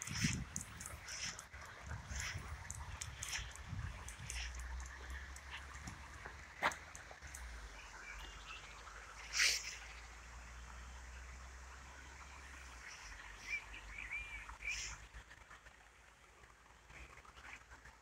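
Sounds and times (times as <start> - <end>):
bird chirps: 0.0 - 10.2, 12.8 - 15.0
rustling hiss: 0.0 - 11.5.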